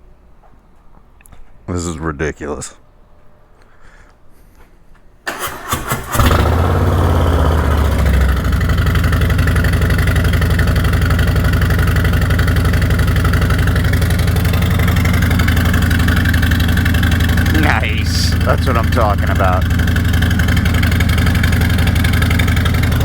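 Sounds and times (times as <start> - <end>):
starter motor cranking: 5.3 - 8.1
motorcycle engine idling: 5.6 - 23.0.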